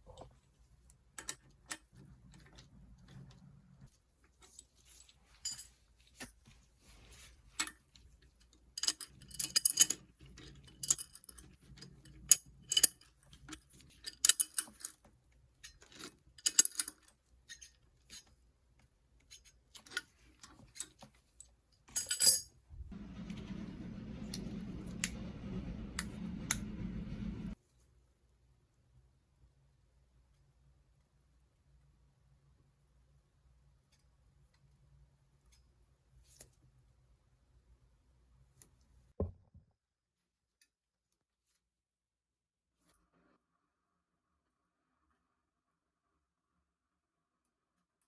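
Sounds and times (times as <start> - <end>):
tools and bicycle parts clinking: 5.4 - 5.8, 8.8 - 15.0, 15.6 - 18.3, 21.9 - 22.5.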